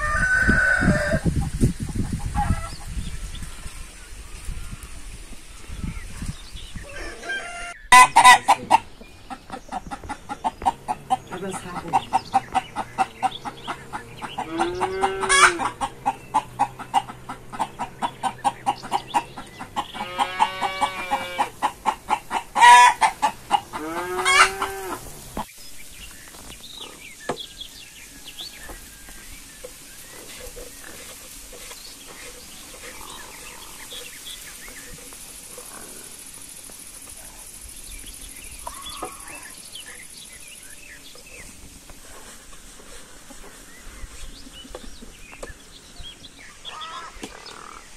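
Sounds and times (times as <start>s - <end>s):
rooster crowing: 0.0s - 1.2s, 6.8s - 8.8s, 14.3s - 16.9s, 19.9s - 21.5s, 22.6s - 25.0s
chickens clucking: 0.0s - 47.9s.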